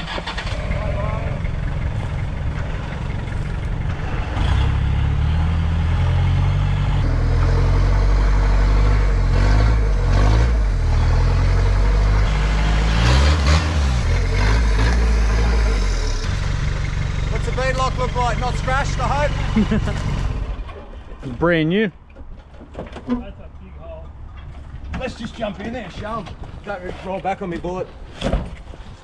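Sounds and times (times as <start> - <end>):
truck engine revving under load: 0.0 - 20.9.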